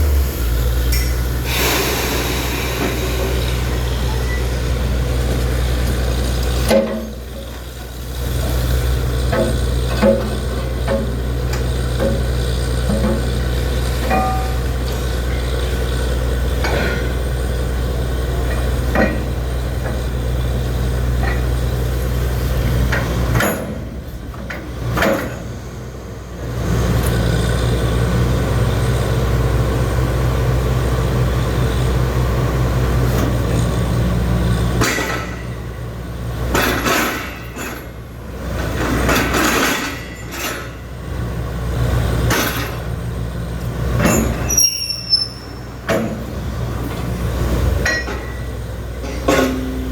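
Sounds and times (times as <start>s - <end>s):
drilling rig engine running: 0.0s - 49.9s
metal clanks: 34.8s - 35.7s, 36.5s - 40.9s, 44.0s - 46.3s, 47.8s - 49.9s.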